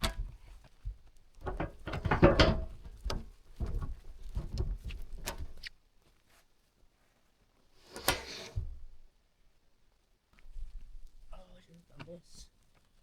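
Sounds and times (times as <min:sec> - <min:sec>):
log knocking and scraping: 0:00.0 - 0:05.7.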